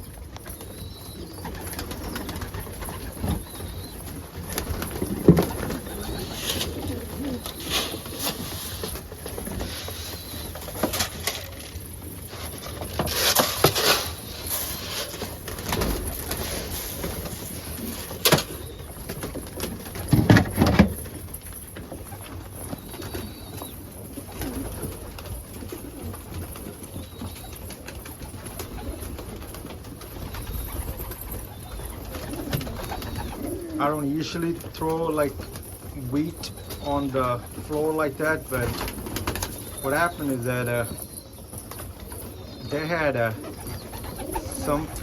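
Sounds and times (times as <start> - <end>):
pigeons cooing: 0.0 - 45.0
wings flapping: 1.4 - 20.2, 24.3 - 33.8, 43.3 - 45.0.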